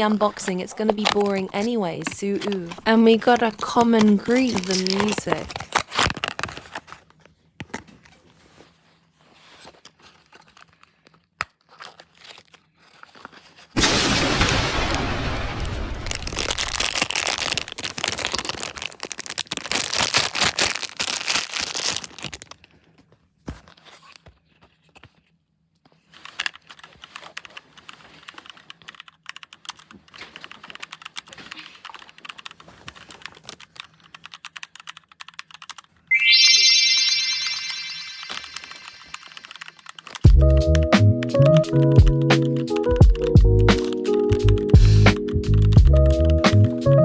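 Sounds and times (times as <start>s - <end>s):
packaging crinkling and tearing: 0.0s - 13.8s, 14.4s - 34.3s
music: 40.3s - 47.0s.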